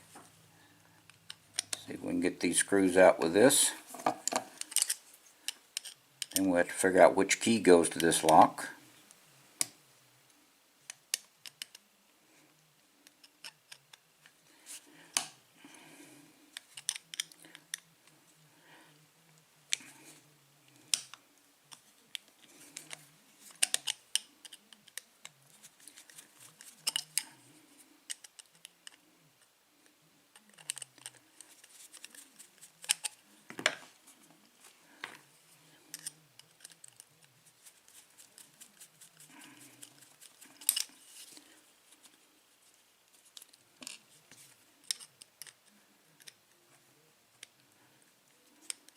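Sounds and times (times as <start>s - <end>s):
small metal clicks and scrapes: 3.9s - 6.5s, 10.9s - 11.8s, 13.0s - 14.0s, 16.5s - 17.8s, 20.7s - 29.5s, 30.3s - 33.2s, 35.7s - 46.4s, 48.4s - 48.9s.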